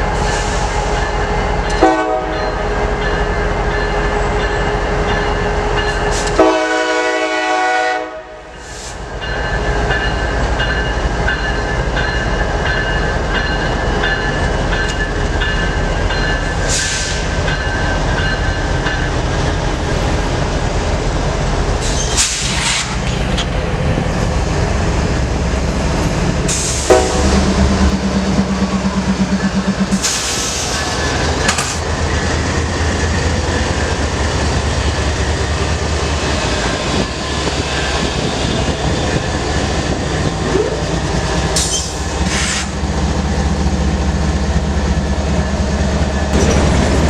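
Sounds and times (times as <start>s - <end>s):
train rumbling past: 0.0s - 47.0s
locomotive horn: 1.7s - 2.8s, 6.2s - 8.5s, 26.8s - 27.8s.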